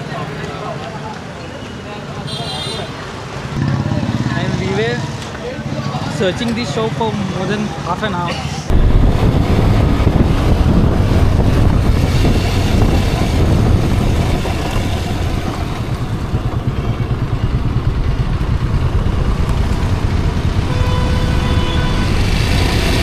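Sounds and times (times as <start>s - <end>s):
motorcycle engine rumble: 3.5s - 8.0s, 8.6s - 23.0s
wind rushing over microphone: 8.7s - 23.0s.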